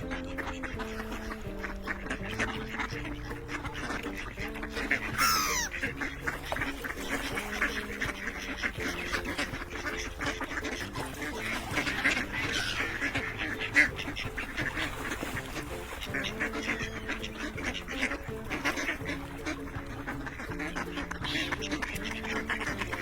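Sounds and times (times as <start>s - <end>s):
ducks quacking: 0.0s - 23.0s
falling whistle-like call: 5.2s - 5.7s.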